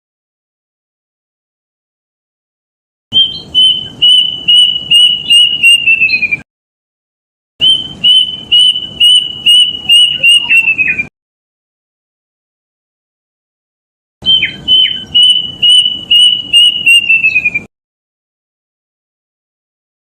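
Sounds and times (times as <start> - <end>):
cuckoo whistled song: 3.1 - 6.4, 7.6 - 11.1, 14.2 - 17.7.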